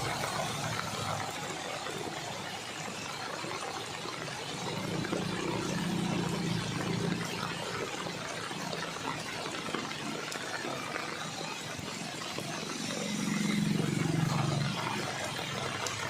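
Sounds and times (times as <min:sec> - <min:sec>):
water rushing: 0:00.0 - 0:16.0
vehicle engine running: 0:11.9 - 0:16.0.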